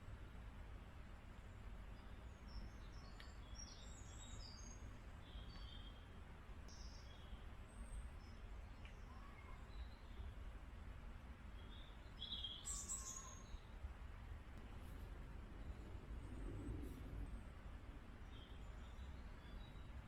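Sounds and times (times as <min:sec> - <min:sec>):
small birds chirping: 0:11.6 - 0:13.7
low steady rumble: 0:13.5 - 0:20.0.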